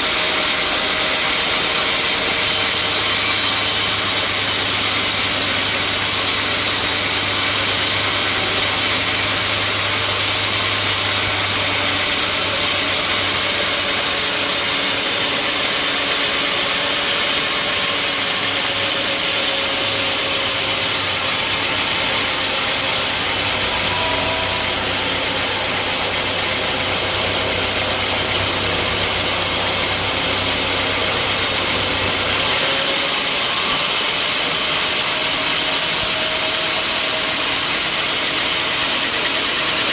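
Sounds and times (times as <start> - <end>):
motor drone: 0.0 - 39.9
saw cutting timber: 0.0 - 39.9.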